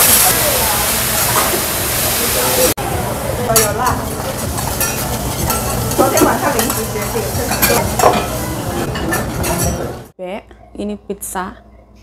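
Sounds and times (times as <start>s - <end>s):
food sizzling on a hotplate: 0.0s - 8.9s
utensils clinking: 3.5s - 10.1s.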